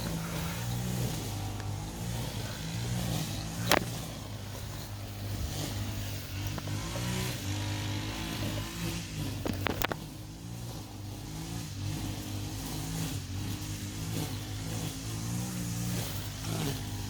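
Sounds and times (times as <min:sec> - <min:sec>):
sharp crack: 0:00.0 - 0:04.2
line trimmer cutting grass: 0:00.0 - 0:17.0.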